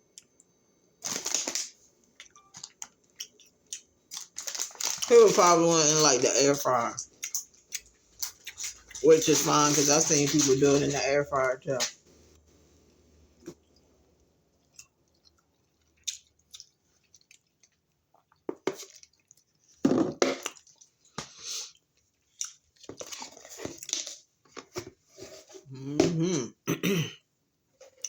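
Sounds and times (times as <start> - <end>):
person chewing crunchy food: 2.2 - 6.0, 6.9 - 9.0, 14.6 - 19.8, 20.4 - 24.2.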